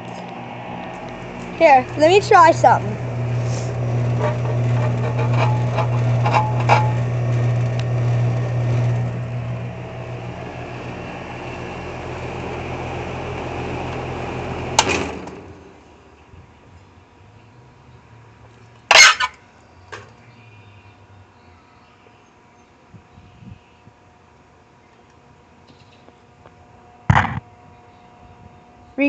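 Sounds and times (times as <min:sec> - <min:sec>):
air conditioner unit humming: 0:00.0 - 0:17.3, 0:19.4 - 0:29.0
condenser fan winding down: 0:00.0 - 0:18.8.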